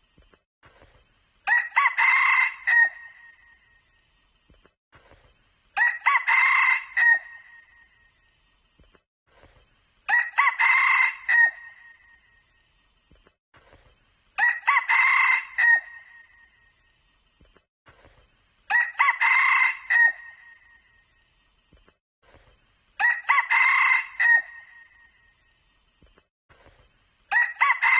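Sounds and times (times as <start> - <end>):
rooster crowing: 1.5 - 3.1, 5.8 - 7.6, 10.1 - 11.8, 14.4 - 16.0, 18.7 - 20.6, 23.0 - 24.9, 27.3 - 27.9.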